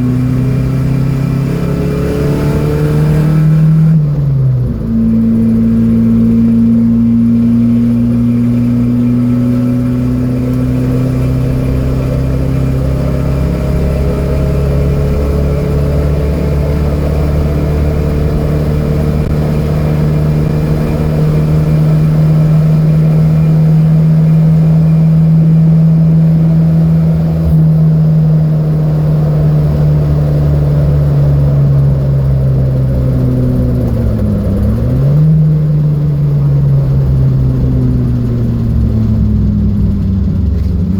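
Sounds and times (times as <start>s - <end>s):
car engine revving hard: 0.0s - 40.9s.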